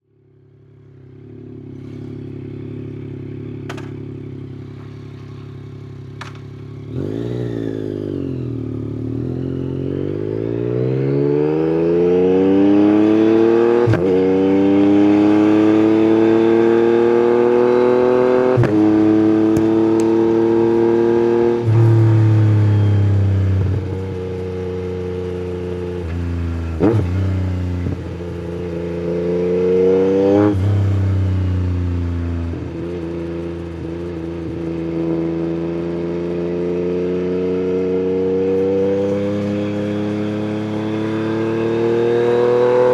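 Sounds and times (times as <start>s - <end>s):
motorcycle engine revving: 0.3s - 42.9s.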